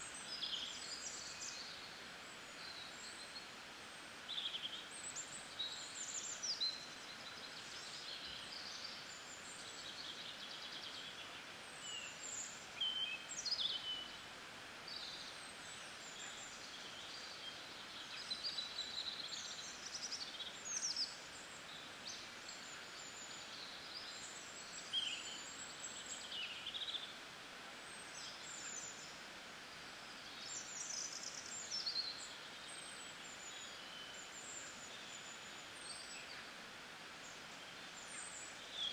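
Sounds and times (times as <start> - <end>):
faint outdoor hiss: 0.0 - 38.9.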